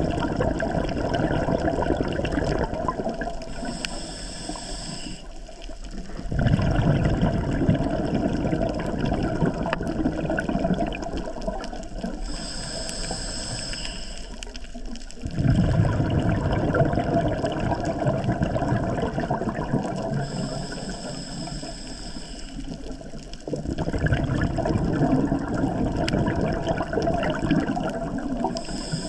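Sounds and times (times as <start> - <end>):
exhaled bubbles rumbling: 0.0 - 4.6, 5.2 - 21.6, 22.5 - 29.0
regulator hissing inhale: 3.5 - 5.6, 12.2 - 14.7, 20.1 - 23.0, 28.3 - 29.0.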